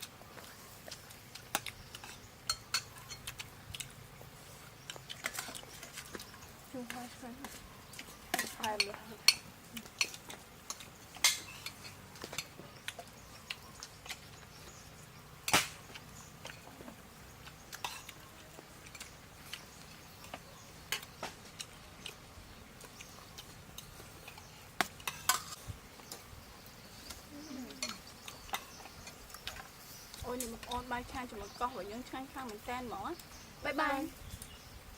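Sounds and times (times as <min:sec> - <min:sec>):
utensils clinking against plates: 0:00.0 - 0:03.9, 0:04.8 - 0:13.1, 0:17.7 - 0:22.2, 0:23.4 - 0:26.2, 0:26.9 - 0:30.9.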